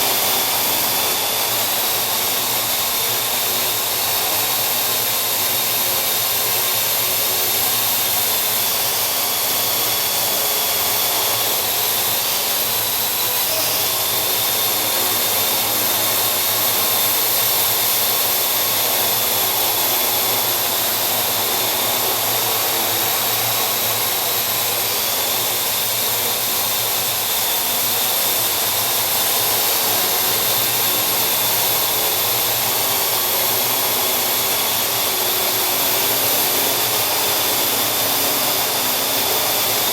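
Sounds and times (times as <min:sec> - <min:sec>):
quadcopter propellers whirring: 0:00.0 - 0:39.9.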